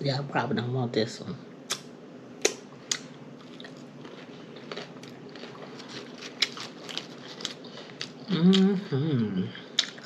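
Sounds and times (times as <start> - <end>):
chewing and lip-smacking: 2.4 - 8.7, 9.7 - 10.0.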